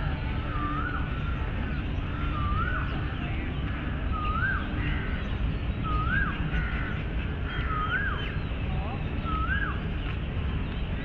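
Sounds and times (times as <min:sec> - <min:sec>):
low background rumble: 0:00.0 - 0:11.0
bird rising whistled call: 0:05.8 - 0:06.4, 0:09.2 - 0:09.8.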